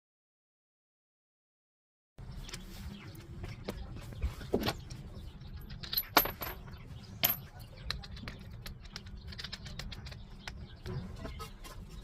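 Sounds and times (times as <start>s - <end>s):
metal parts clinking: 5.6s - 7.5s.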